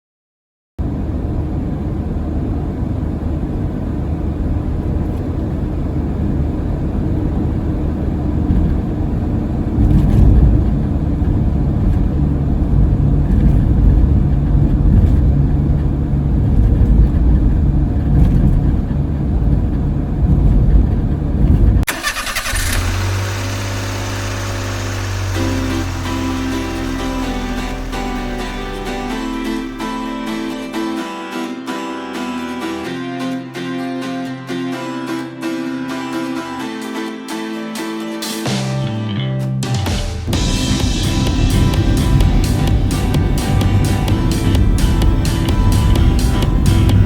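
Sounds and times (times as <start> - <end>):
vehicle engine rumbling: 0.8 - 31.4, 38.9 - 47.0
road noise: 0.8 - 47.0
music: 25.4 - 47.0.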